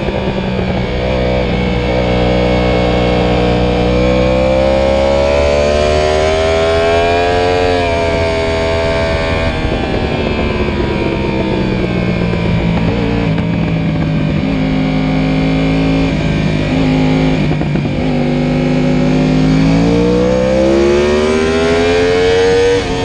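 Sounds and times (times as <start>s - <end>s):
wind rush: 0.0s - 4.2s, 6.2s - 23.0s
motorcycle engine accelerating: 0.0s - 23.0s.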